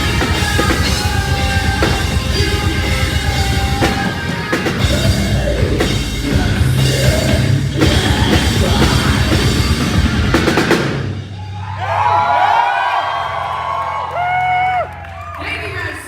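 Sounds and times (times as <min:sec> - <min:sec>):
heavy metal band playing: 0:00.0 - 0:12.6.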